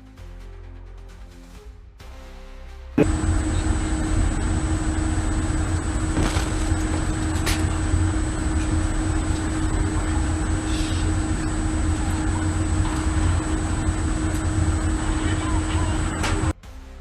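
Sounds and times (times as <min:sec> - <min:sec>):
constant hum: 0:03.0 - 0:16.6
low engine rumble: 0:03.0 - 0:16.6.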